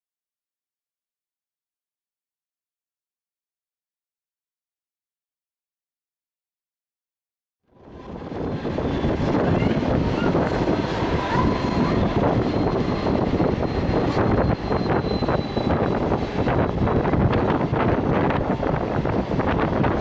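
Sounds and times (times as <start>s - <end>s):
rushing air: 7.8s - 20.0s
train wheels rumbling on track: 7.8s - 20.0s
faint high squeal: 8.5s - 17.2s.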